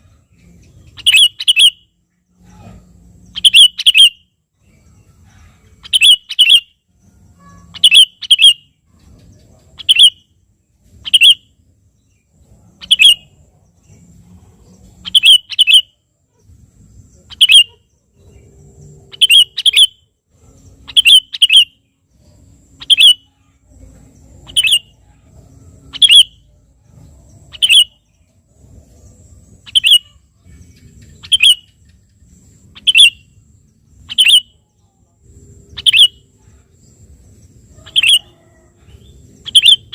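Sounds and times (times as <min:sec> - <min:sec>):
bird calling in sharp notes: 0:00.9 - 0:02.8, 0:03.4 - 0:04.3, 0:05.9 - 0:06.8, 0:07.4 - 0:08.8, 0:09.8 - 0:10.3, 0:11.1 - 0:11.5, 0:12.8 - 0:13.4, 0:15.0 - 0:16.0, 0:17.3 - 0:17.8, 0:19.1 - 0:20.1, 0:20.8 - 0:21.8, 0:22.7 - 0:23.5, 0:25.8 - 0:26.5, 0:27.5 - 0:28.1, 0:29.6 - 0:31.8, 0:32.7 - 0:33.4, 0:34.0 - 0:34.6, 0:35.7 - 0:36.3, 0:37.8 - 0:38.6, 0:39.4 - 0:39.9.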